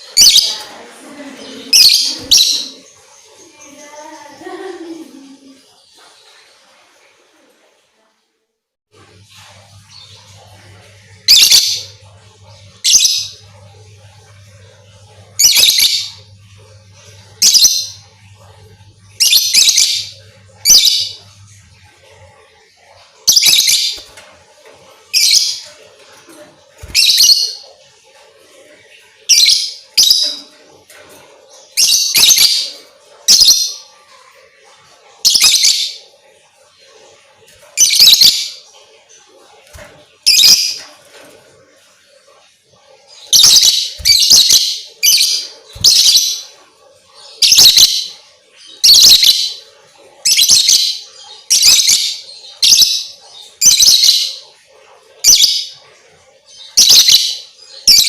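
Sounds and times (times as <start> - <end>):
shrill bird chirping: 1.7 - 4.2, 43.2 - 46.5, 47.4 - 48.2
lovebird rasping calls: 43.3 - 46.5.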